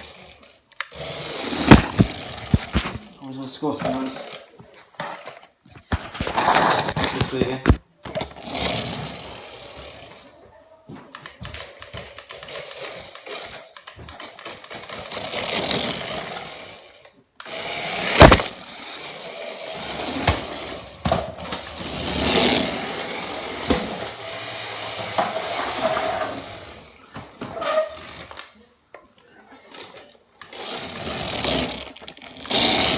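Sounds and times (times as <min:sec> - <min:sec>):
toy car electric motor whining: 0:00.0 - 0:03.0, 0:08.2 - 0:10.3, 0:11.5 - 0:27.0, 0:29.7 - 0:32.9.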